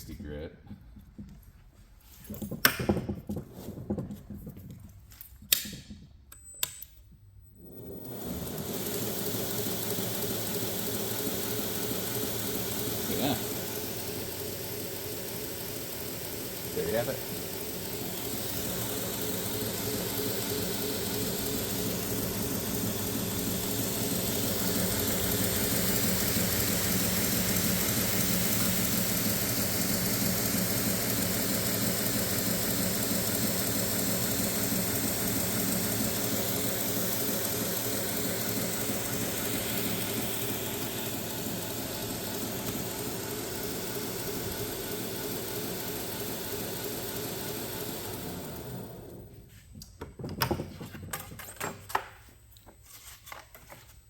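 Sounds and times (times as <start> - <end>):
belt grinder motor hum: 7.6 - 49.3.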